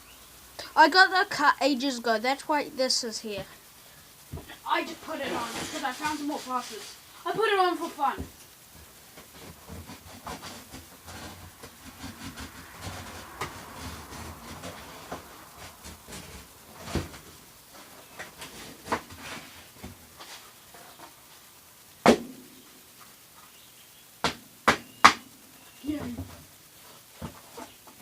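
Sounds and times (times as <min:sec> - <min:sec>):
sharp loud knock: 0:22.0 - 0:22.5, 0:24.2 - 0:25.3.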